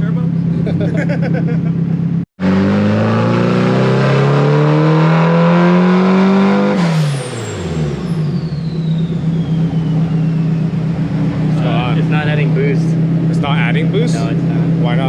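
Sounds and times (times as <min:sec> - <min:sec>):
car engine revving: 0:02.4 - 0:15.0
turbo whistle: 0:06.7 - 0:11.2.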